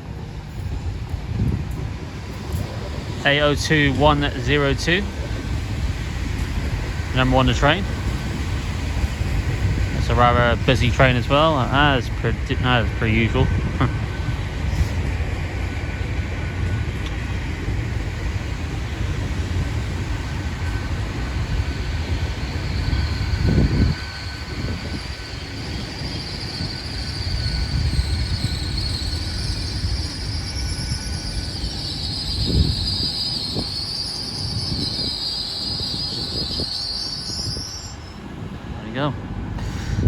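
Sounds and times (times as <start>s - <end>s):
train engine rumble: 0.0s - 40.0s
wheel squeal: 18.6s - 38.2s.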